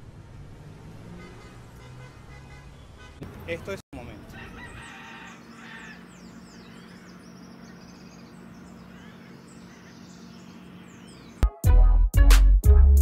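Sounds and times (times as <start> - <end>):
birds chirping: 2.2 - 11.4.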